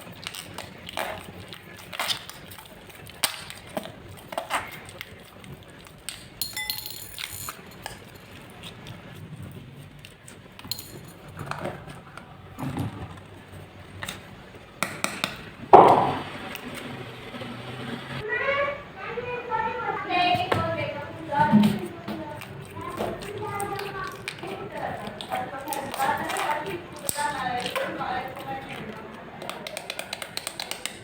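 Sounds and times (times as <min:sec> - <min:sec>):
containers and tools clinking: 0:00.0 - 0:09.0, 0:10.0 - 0:14.2, 0:20.4 - 0:31.0.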